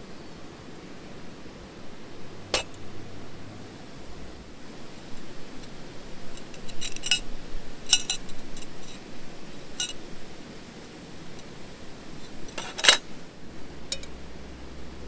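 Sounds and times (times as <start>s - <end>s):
steady low hiss: 0.0s - 15.0s
metal cookware clinking: 2.6s - 2.8s, 6.4s - 7.3s, 7.9s - 9.0s, 12.3s - 13.0s, 13.9s - 14.2s.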